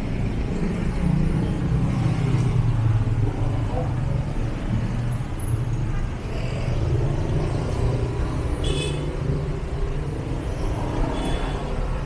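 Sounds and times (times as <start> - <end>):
traffic passing: 0.0 - 12.0.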